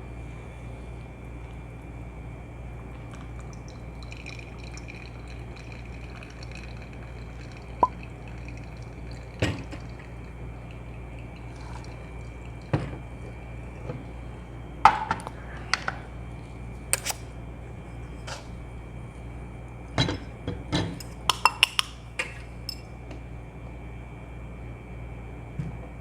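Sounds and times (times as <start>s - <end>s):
coffee dripping through filter: 1.1s - 15.3s.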